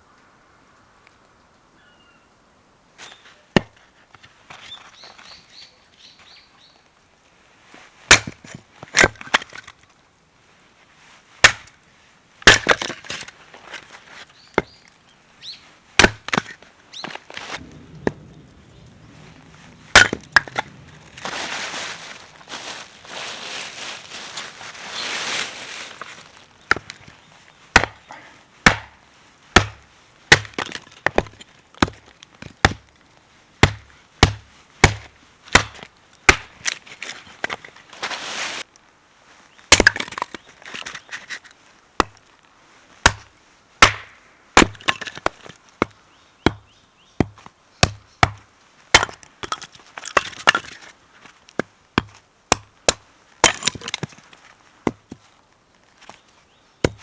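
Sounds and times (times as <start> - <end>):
blade chopping firewood: 8.1 - 9.7, 11.4 - 11.7, 12.4 - 13.9, 16.0 - 18.3, 19.3 - 22.4, 26.0 - 32.9, 33.6 - 37.7, 39.7 - 41.0, 43.0 - 50.9, 51.6 - 55.2.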